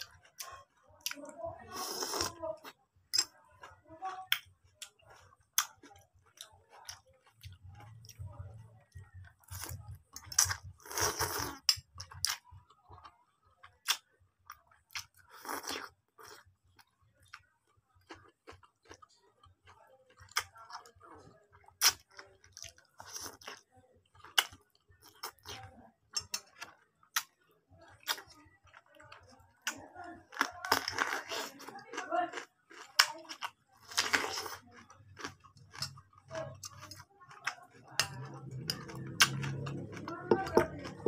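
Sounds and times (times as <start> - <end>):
chewing fried noodles: 0.0 - 41.0
crunching cucumber bites: 29.6 - 41.0.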